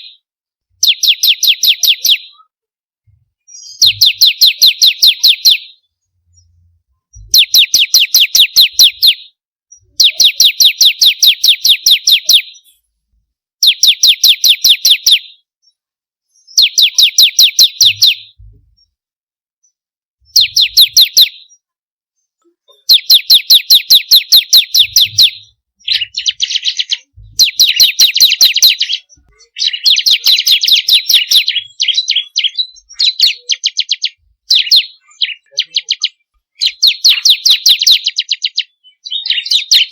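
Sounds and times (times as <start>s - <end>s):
bird singing sharp high notes: 22.9s - 39.9s.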